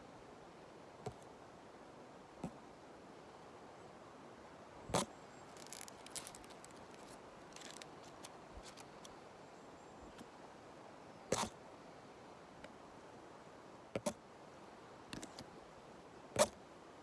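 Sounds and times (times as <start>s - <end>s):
faint steady hiss: 0.0s - 17.0s
leaves and twigs crackling: 5.4s - 9.1s.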